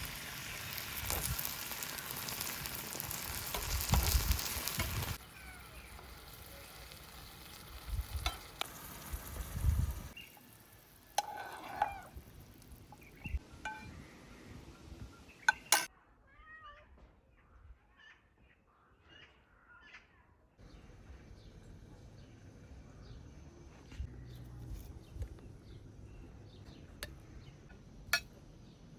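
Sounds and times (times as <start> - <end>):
food sizzling in a frying pan: 0.0 - 13.9
stirring knocks and scrapes: 11.1 - 12.2.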